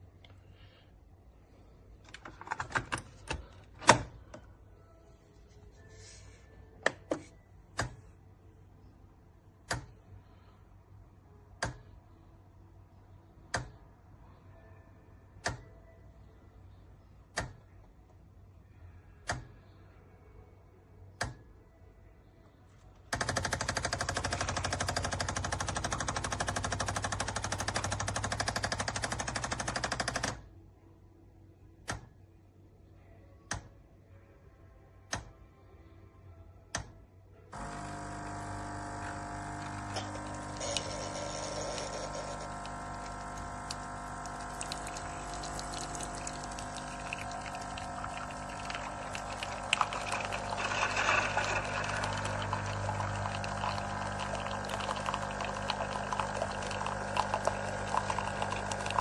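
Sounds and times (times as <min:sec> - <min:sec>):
coffee machine pump buzzing: 0:23.1 - 0:30.3, 0:37.6 - 0:59.0.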